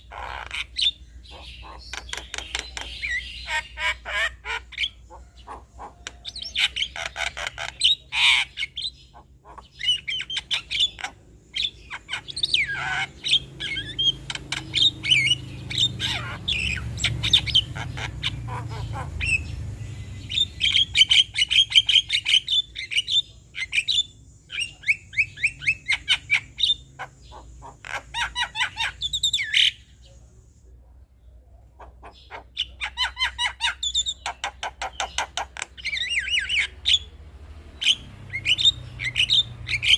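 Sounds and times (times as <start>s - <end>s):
myna chattering song: 0.0s - 21.7s.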